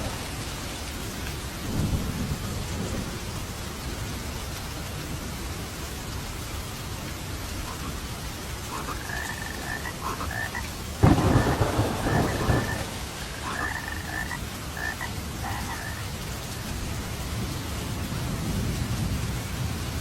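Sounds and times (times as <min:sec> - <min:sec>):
steady rain: 0:00.0 - 0:20.0
thunderclap rumbling: 0:01.6 - 0:03.3, 0:08.7 - 0:20.0
frogs croaking: 0:07.5 - 0:16.2.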